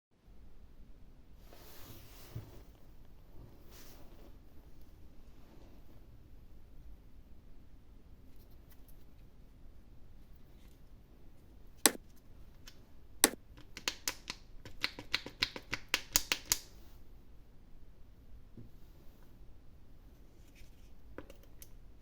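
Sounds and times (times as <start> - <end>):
plastic egg clicks: 12.7 - 16.7.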